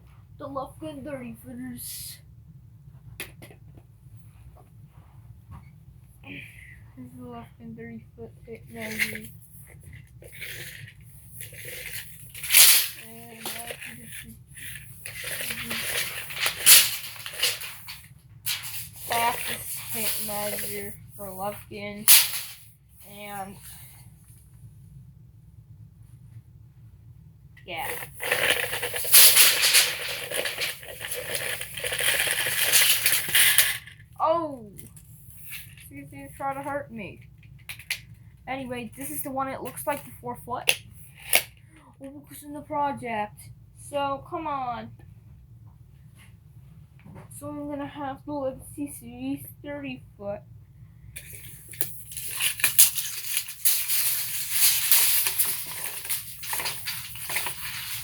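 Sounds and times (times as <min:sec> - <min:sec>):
tape measure blade scraping rattle: 0:08.7 - 0:09.3, 0:10.2 - 0:22.7, 0:27.8 - 0:33.9, 0:51.2 - 0:58.0
tape measure blade retracting: 0:15.1 - 0:20.8, 0:51.7 - 0:58.0.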